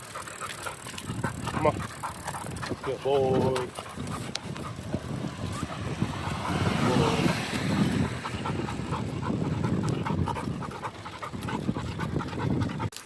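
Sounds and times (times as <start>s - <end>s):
dog panting rapidly: 0.0s - 13.0s.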